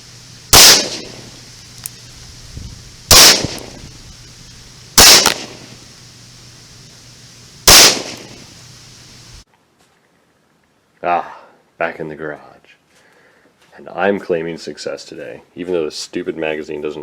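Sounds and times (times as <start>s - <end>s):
rifle shots with echo: 0.5s - 1.4s, 3.1s - 3.8s, 5.0s - 5.8s, 7.7s - 8.4s.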